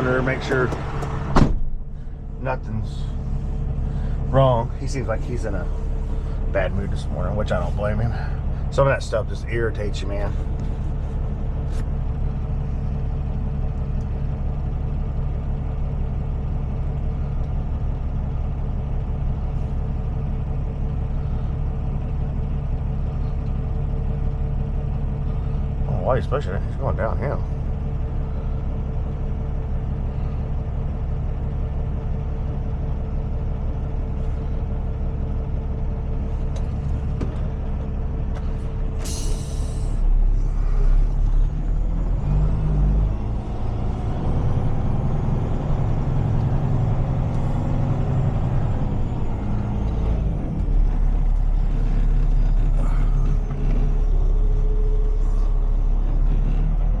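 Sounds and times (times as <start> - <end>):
diesel truck engine idling: 0.0 - 57.0
air brake hiss: 39.0 - 40.1.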